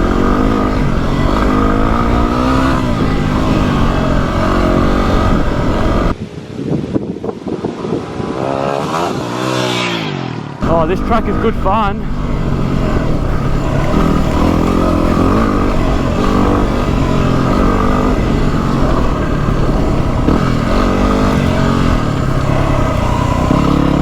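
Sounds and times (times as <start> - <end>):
motorcycle engine revving: 0.0 - 6.2, 7.6 - 24.0.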